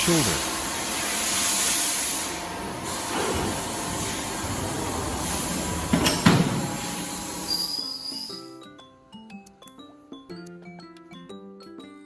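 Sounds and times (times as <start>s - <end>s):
machinery hiss and rumble: 0.0s - 7.9s
thin high whine: 2.2s - 8.5s
heavy knocks: 4.7s - 7.1s.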